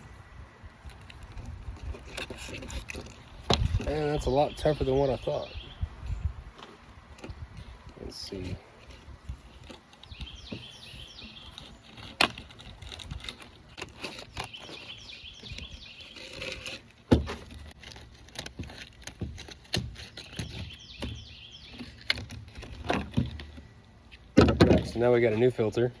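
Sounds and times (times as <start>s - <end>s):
bird singing high notes: 4.1s - 5.9s.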